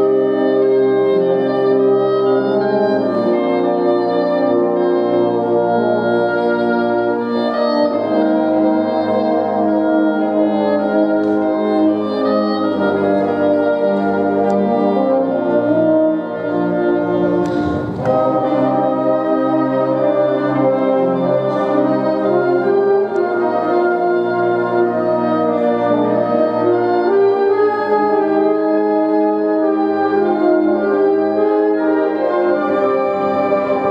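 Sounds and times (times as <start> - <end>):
brass ensemble music: 12.2 - 28.7
brief noisy crash: 17.2 - 18.7.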